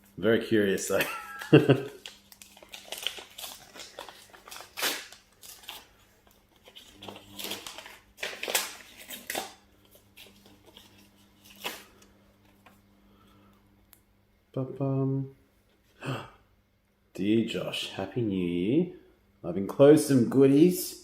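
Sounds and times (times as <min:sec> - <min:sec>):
card rustling: 0:00.6 - 0:12.8
paper envelope tearing: 0:00.7 - 0:12.0.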